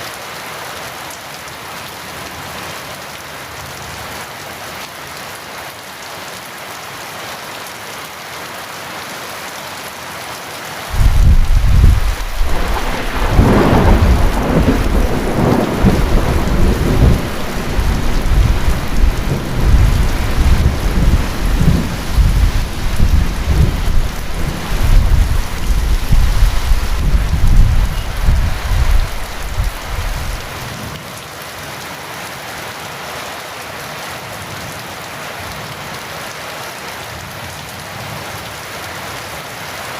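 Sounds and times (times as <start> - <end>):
heavy rain falling: 0.0 - 39.9
deep roll of thunder: 10.9 - 30.5.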